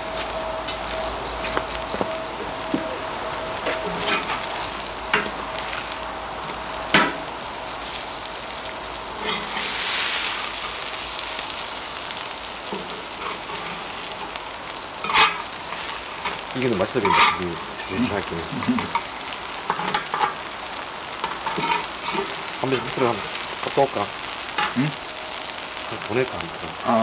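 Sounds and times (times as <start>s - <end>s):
pancakes sizzling in oil: 0.0s - 27.0s
utensils clicking against pan: 5.1s - 5.4s, 15.0s - 20.4s, 21.2s - 23.4s.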